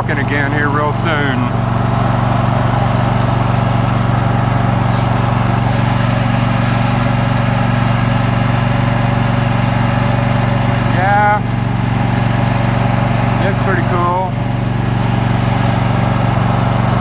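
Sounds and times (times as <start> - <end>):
riding lawn mower engine droning: 0.0 - 17.0.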